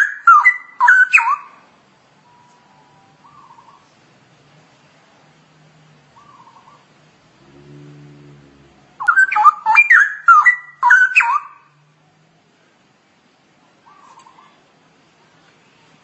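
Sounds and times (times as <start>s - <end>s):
bird whistled warbles: 0.0s - 1.5s, 9.0s - 11.6s
faint low hooting hum: 1.4s - 16.0s.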